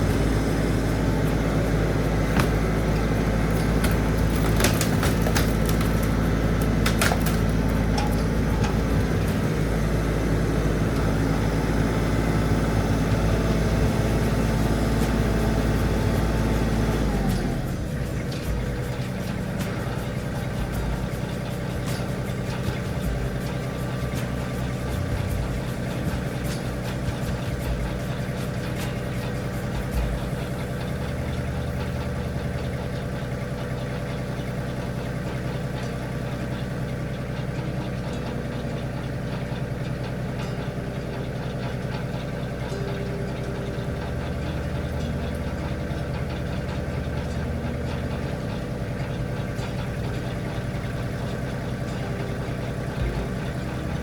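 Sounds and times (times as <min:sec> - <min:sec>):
knocks and clatter: 0:00.0 - 0:09.8, 0:15.0 - 0:34.6
tractor engine idling: 0:00.0 - 0:54.0.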